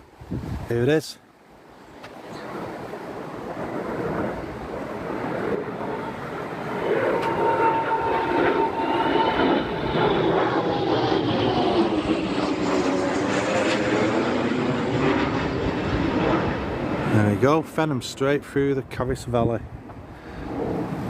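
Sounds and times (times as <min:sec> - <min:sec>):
jet flying low past: 0:01.4 - 0:21.0
turbine whine falling in pitch: 0:02.4 - 0:17.6.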